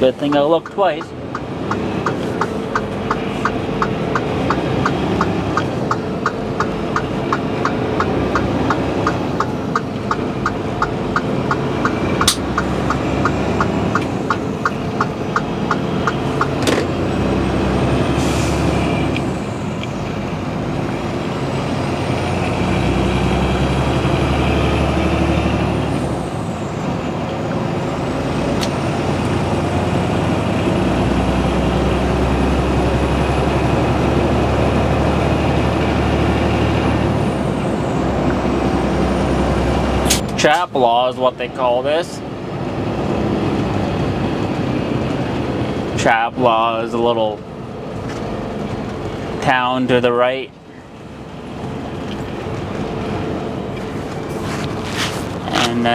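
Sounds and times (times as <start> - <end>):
truck engine and road drone: 0.0 - 55.9
regular ticking: 0.2 - 16.7.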